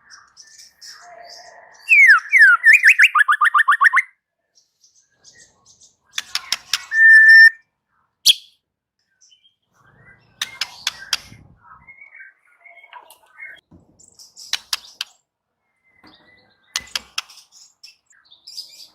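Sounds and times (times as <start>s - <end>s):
bird singing whistled notes: 0.1s - 4.2s, 6.8s - 7.6s, 8.3s - 8.6s.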